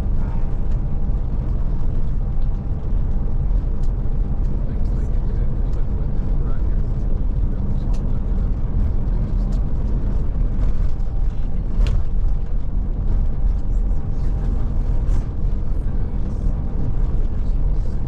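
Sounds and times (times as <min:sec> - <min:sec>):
coach engine and road drone: 0:00.0 - 0:18.0.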